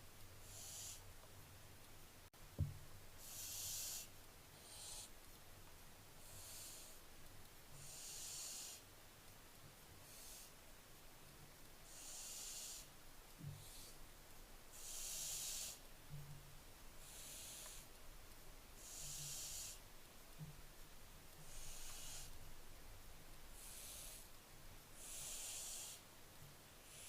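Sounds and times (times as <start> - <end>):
owlets hissing begging calls: 14.8 - 15.8.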